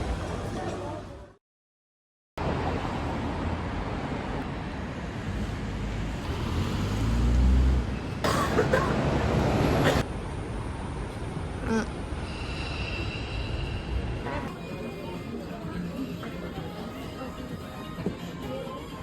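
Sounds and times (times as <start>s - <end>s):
moving vehicle rumble: 2.4s - 14.5s.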